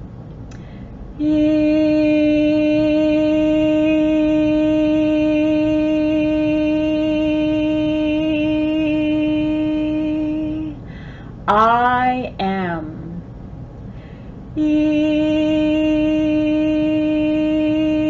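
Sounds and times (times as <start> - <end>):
woman toning a long vowel: 1.2 - 10.8, 14.6 - 18.0.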